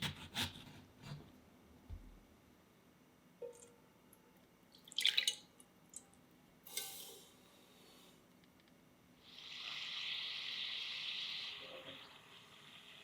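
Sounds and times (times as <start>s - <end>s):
water dripping or splashing: 4.8s - 6.1s.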